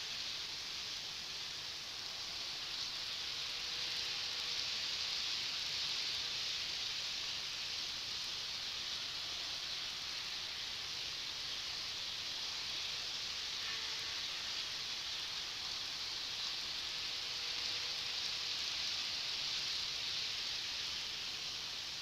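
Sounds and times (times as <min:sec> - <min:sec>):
model train running on track: 0:00.0 - 0:22.0.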